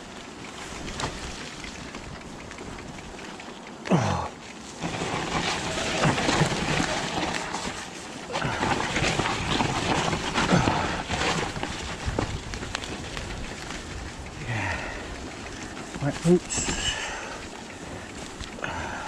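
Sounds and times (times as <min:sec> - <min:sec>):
bike knocks and rattles: 0:00.0 - 0:03.8, 0:04.4 - 0:18.6
bike tyre noise: 0:00.0 - 0:19.0
wind buffeting microphone: 0:08.6 - 0:15.7.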